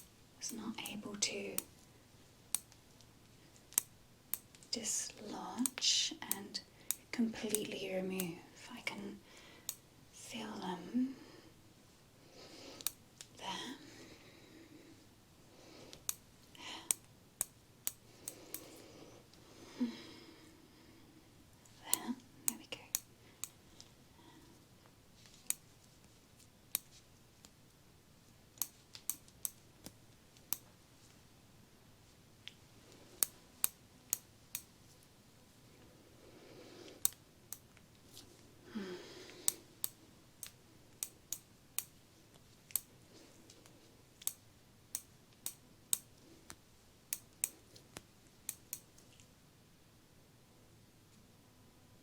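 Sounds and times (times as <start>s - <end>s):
sharp crisp clicks: 0.0s - 1.7s, 2.5s - 8.4s, 9.6s - 9.9s, 12.8s - 13.4s, 15.9s - 18.8s, 21.6s - 24.0s, 25.3s - 25.7s, 28.5s - 30.8s, 32.4s - 34.8s, 36.9s - 38.0s, 39.3s - 42.9s, 43.5s - 49.3s
person sighing: 19.7s - 20.4s
person exhaling: 38.6s - 39.6s.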